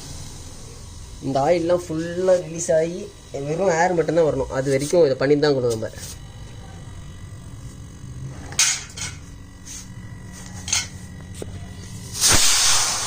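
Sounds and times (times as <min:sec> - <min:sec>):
compressed air hissing from pipe: 0:00.0 - 0:05.0, 0:05.7 - 0:06.3, 0:09.2 - 0:13.0
refrigerator compressor humming: 0:00.0 - 0:13.0.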